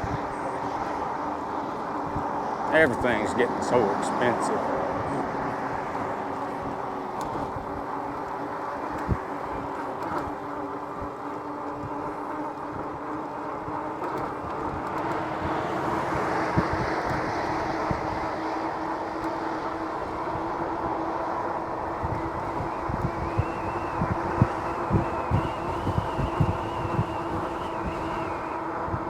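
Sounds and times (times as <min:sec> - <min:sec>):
road and wind noise: 0:00.0 - 0:29.0.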